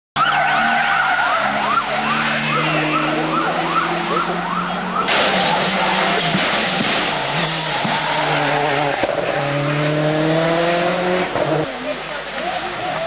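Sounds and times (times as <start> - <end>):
vehicle siren wailing and yelping: 0.2 - 9.9
rally car rushing noise: 0.2 - 13.0.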